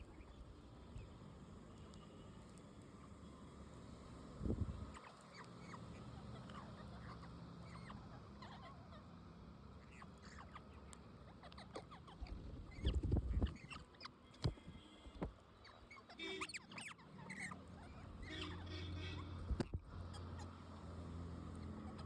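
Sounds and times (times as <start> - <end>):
parrots chirping: 4.9 - 9.0, 9.8 - 14.9, 15.6 - 20.6.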